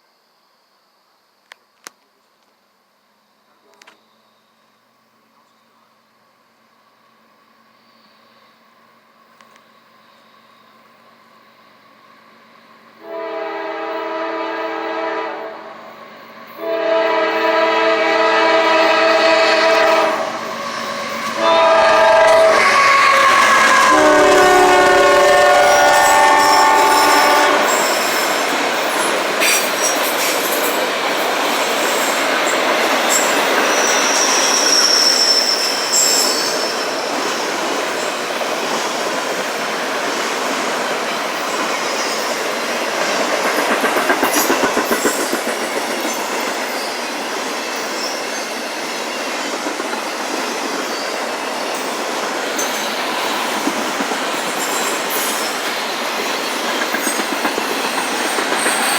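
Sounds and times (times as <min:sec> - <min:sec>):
freight train rolling past: 0:06.5 - 0:58.9
locomotive horn chord: 0:13.0 - 0:15.8, 0:16.6 - 0:27.8
high wheel squeal: 0:17.4 - 0:30.8, 0:31.5 - 0:39.8, 0:54.2 - 0:58.9
rhythmic wheel clicks on rail joints: 0:20.4 - 0:34.8, 0:36.2 - 0:58.9.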